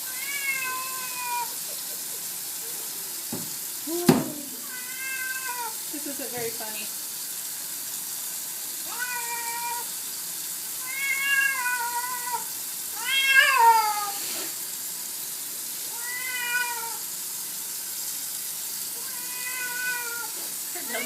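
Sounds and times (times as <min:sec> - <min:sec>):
cat meowing: 0:00.0 - 0:01.5, 0:04.6 - 0:05.8, 0:08.9 - 0:09.9, 0:10.8 - 0:14.2, 0:15.9 - 0:17.0, 0:19.0 - 0:20.4.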